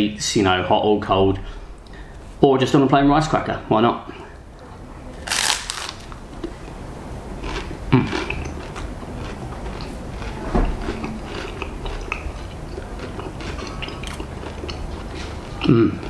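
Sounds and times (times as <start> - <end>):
rice cracker crunching: 5.3 - 6.2.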